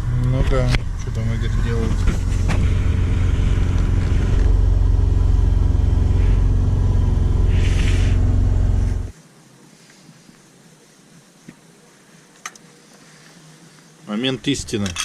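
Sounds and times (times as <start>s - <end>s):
car engine running: 0.0s - 9.1s
short hiss: 7.5s - 9.0s.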